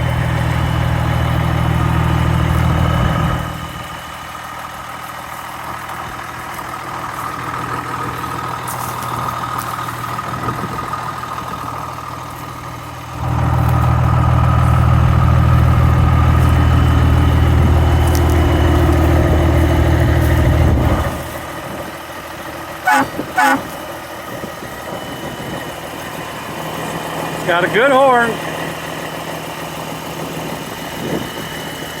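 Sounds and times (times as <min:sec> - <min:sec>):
diesel truck idling: 0:00.0 - 0:32.0
truck horn blast: 0:22.8 - 0:23.8.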